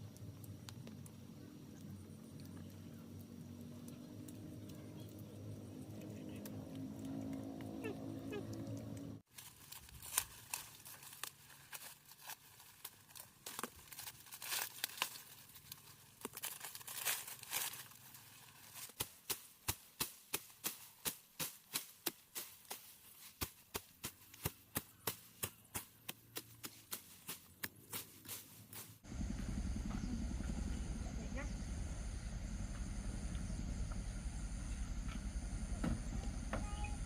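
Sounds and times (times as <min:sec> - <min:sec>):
rustling straw: 0:09.3 - 0:25.9, 0:26.6 - 0:29.1
sickle cutting rice stalks: 0:09.3 - 0:29.0.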